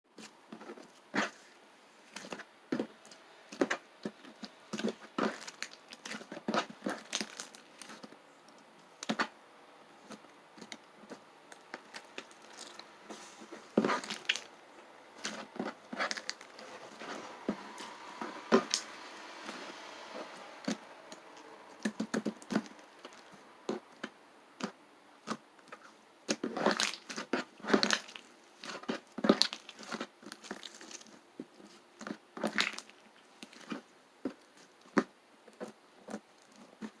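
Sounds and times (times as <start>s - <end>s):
crinkling and crunching: 0.2s - 9.4s, 10.0s - 37.0s.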